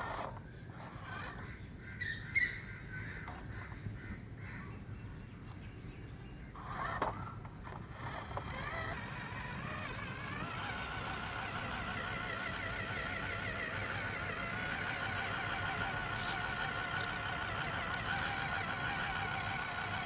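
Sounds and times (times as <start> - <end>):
electric motor whining: 0.0 - 1.5, 6.6 - 20.0.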